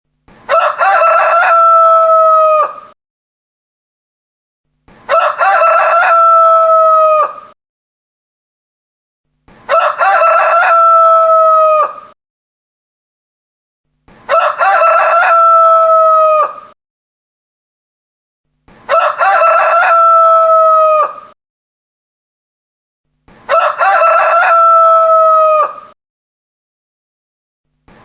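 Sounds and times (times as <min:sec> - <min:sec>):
rooster crowing: 0:00.5 - 0:03.0, 0:05.1 - 0:07.6, 0:09.7 - 0:12.2, 0:14.3 - 0:16.8, 0:18.9 - 0:21.4, 0:23.5 - 0:26.0.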